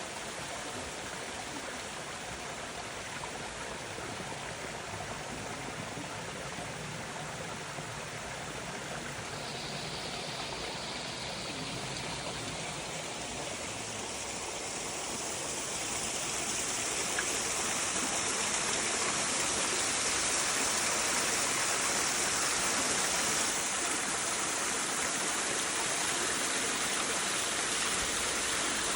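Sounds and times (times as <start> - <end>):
waterfall rushing: 7.6 - 28.9.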